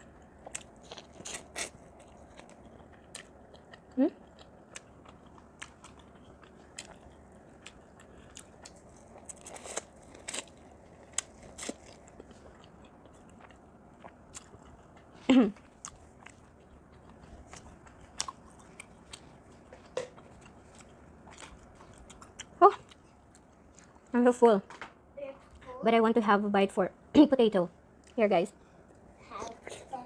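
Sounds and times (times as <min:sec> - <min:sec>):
chewing and mouth clicks: 0:00.1 - 0:24.2.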